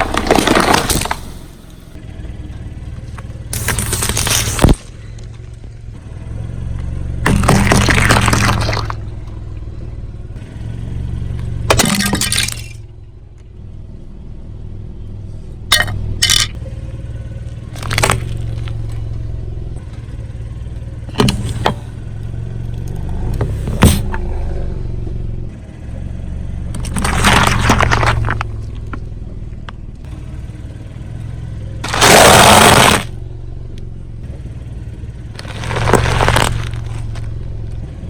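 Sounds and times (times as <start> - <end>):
sharp cracks and pops: 0.0 - 1.8, 3.1 - 5.6, 7.2 - 9.4, 11.4 - 12.8, 17.5 - 19.1, 26.7 - 29.0, 31.8 - 33.2, 35.4 - 37.4
tyres crushing objects: 0.0 - 1.9, 3.6 - 4.9, 7.2 - 9.0, 11.7 - 12.8, 15.7 - 16.6, 17.8 - 19.0, 21.1 - 22.0, 23.4 - 24.2, 26.8 - 28.6, 31.8 - 33.2, 35.4 - 37.4
car engine hum: 0.0 - 38.0.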